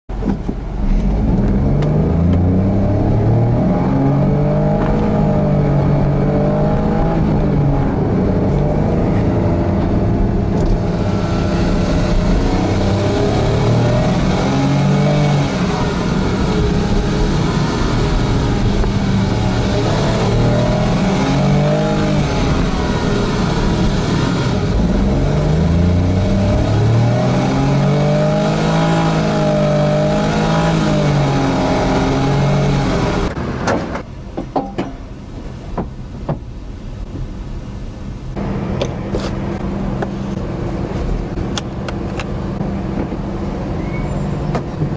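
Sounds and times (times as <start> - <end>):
car engine revving: 0.6 - 33.6.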